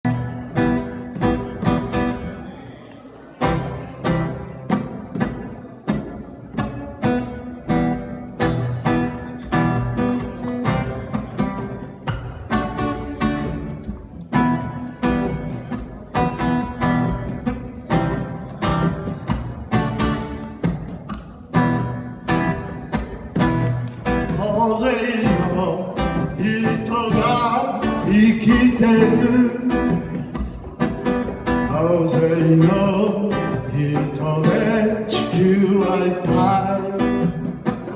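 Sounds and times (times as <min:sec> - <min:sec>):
acoustic guitar strumming: 0:00.0 - 0:37.9
person singing: 0:24.2 - 0:30.2, 0:31.6 - 0:37.5.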